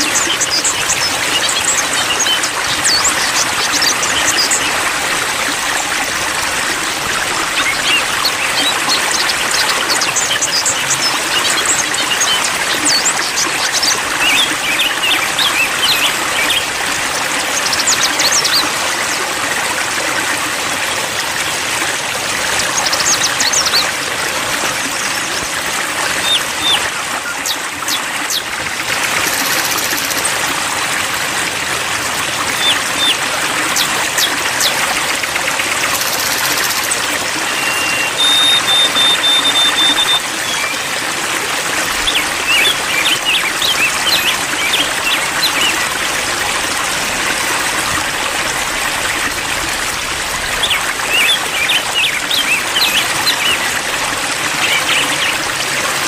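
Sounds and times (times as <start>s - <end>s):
water trickling and splashing: 0.0s - 56.0s
high bird chirps: 35.9s - 40.8s.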